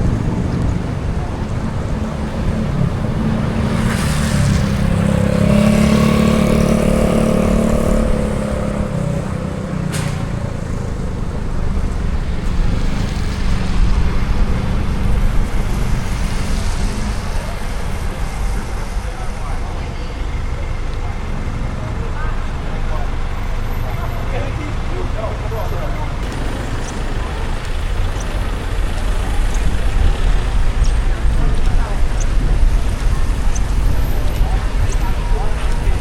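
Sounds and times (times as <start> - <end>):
road traffic rumble: 0.0 - 36.0
vehicle engine hum: 0.0 - 36.0.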